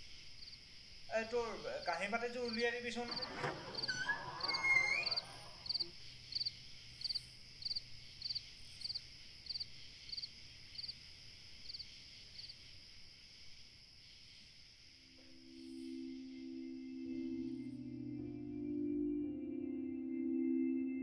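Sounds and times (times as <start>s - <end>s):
high insect drone: 0.0s - 18.4s
crickets chirping: 0.0s - 18.8s
brief loud noise: 3.0s - 5.7s.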